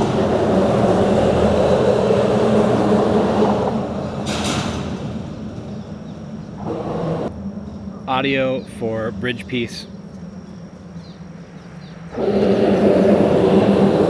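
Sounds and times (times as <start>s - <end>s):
vehicle rumbling over bridge: 0.0s - 8.0s.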